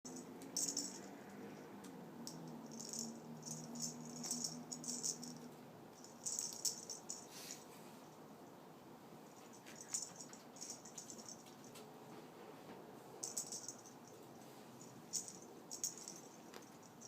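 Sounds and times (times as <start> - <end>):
toy rattle jingling: 0.1 - 1.4, 2.2 - 7.4, 9.4 - 11.7, 13.2 - 17.0
low steady hum: 0.1 - 17.0.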